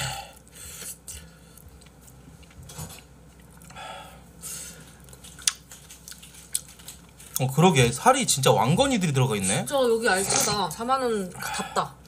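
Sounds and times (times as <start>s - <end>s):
person chewing: 0.2s - 7.5s.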